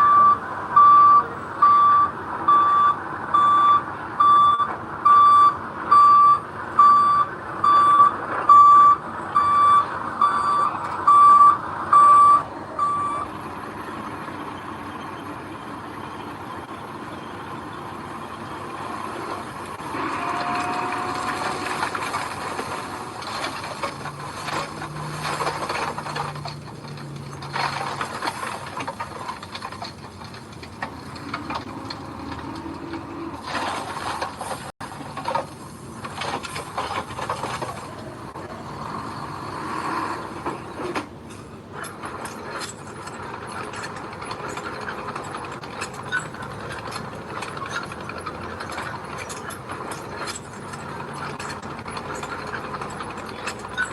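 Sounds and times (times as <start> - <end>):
diesel engine running: 0.0 - 53.9
metal and stones rattling: 19.2 - 38.2, 40.4 - 53.9.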